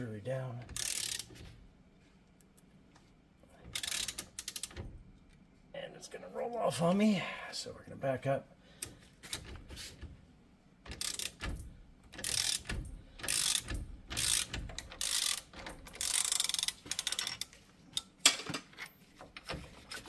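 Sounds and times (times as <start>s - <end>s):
ratchet wrench clicking: 0.7s - 1.3s, 3.7s - 4.8s, 10.9s - 11.4s, 12.1s - 17.5s.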